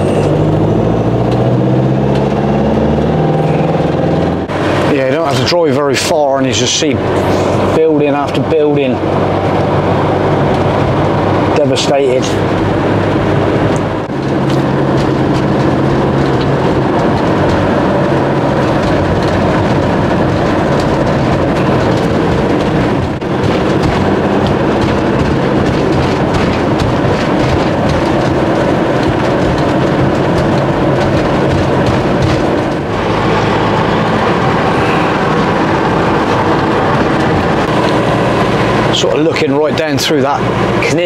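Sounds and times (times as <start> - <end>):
tyre noise on road: 0.0 - 41.0
vehicle engine drone: 0.0 - 41.0.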